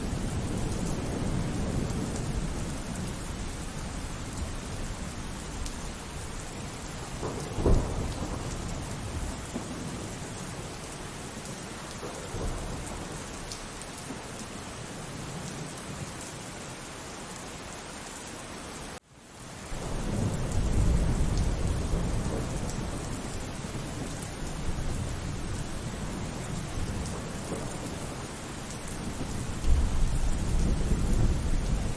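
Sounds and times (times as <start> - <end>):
low rumble of thunder: 0.0 - 14.3, 19.6 - 31.9
steady rainfall: 0.0 - 31.9
sharp thunderclap: 7.0 - 10.1, 29.0 - 31.9.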